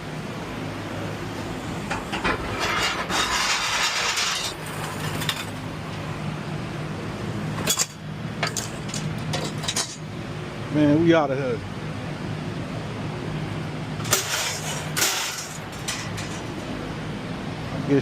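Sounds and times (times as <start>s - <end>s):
steady low hum: 0.0s - 18.0s
metal clinks and rattle: 7.6s - 10.0s, 14.0s - 16.8s.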